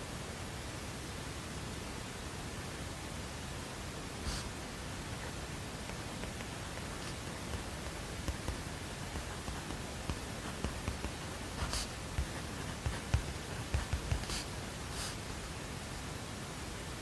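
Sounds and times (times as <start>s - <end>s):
white noise hiss: 0.0s - 17.0s
scratchy rustles: 4.3s - 4.6s, 5.2s - 15.5s
soft low taps: 5.8s - 14.4s.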